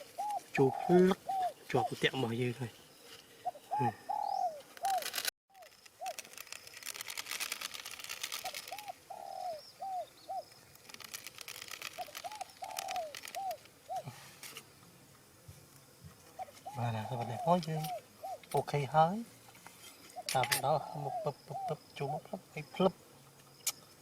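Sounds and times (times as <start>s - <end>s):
dove cooing: 0.0s - 2.2s, 3.4s - 6.3s, 8.2s - 10.5s, 11.5s - 14.4s, 16.3s - 18.9s, 20.2s - 22.6s
light crackling rustle: 4.5s - 9.1s, 10.4s - 20.6s.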